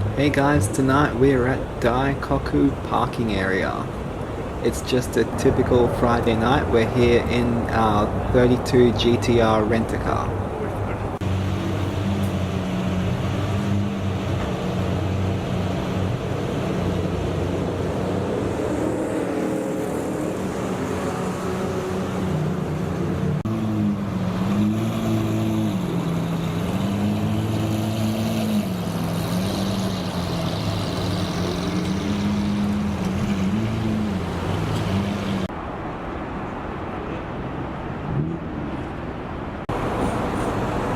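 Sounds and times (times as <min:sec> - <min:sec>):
car engine revving: 0:09.8 - 0:35.5.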